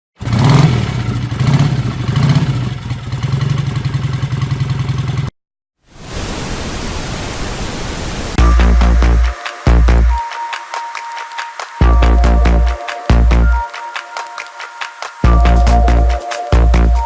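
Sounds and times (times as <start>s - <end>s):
motorcycle engine revving: 0.2s - 5.3s
bass-heavy music beat: 8.4s - 17.0s.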